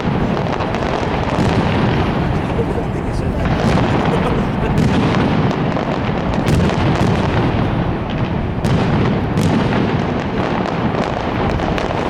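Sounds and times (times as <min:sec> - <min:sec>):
fireworks booms and cracks: 0:00.0 - 0:12.0.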